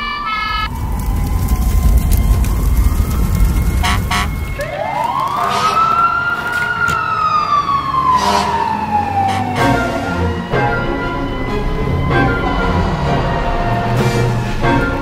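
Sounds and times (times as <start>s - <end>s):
siren wailing: 0.0s - 15.0s
low rumble: 0.5s - 4.8s.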